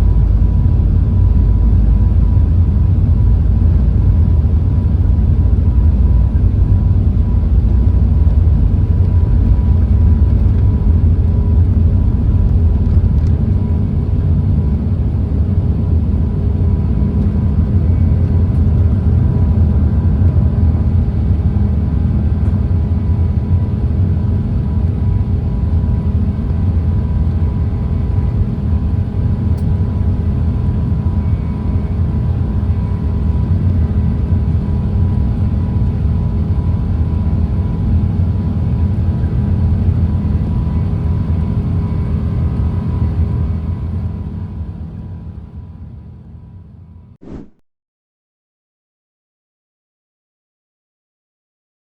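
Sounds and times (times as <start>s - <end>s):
jet engines rumbling: 0.0s - 44.1s
faint steady whining tones: 0.0s - 46.4s.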